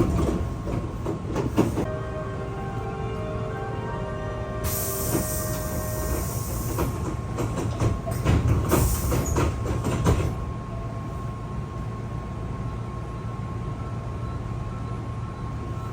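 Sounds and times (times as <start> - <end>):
train rumbling on rails: 0.0 - 15.9
train brake hiss: 4.5 - 7.0, 8.7 - 9.4
wheels clacking over rail joints: 6.1 - 10.4.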